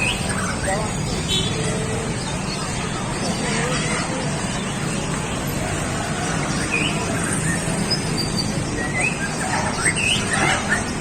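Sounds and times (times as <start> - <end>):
songbirds chirping and whistling: 0.0 - 11.0.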